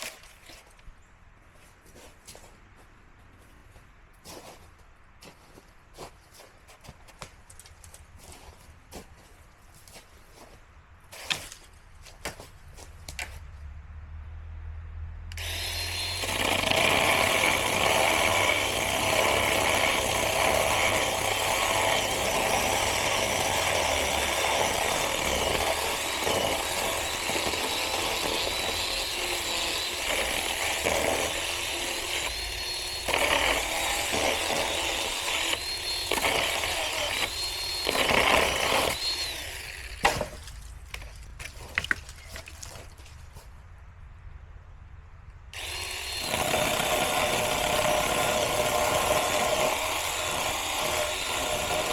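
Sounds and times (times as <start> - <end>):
electric chainsaw cutting wood: 15.3 - 40.4, 45.6 - 51.9.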